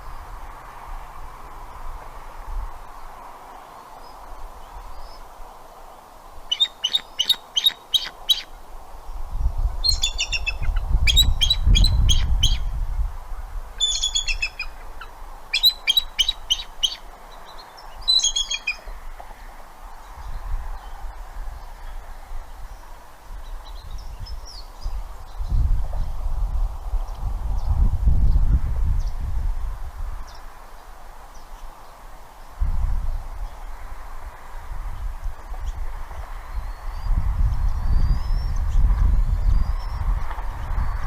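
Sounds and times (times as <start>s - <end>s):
eagle chittering calls: 6.5s - 8.5s, 9.8s - 12.7s, 13.8s - 18.9s.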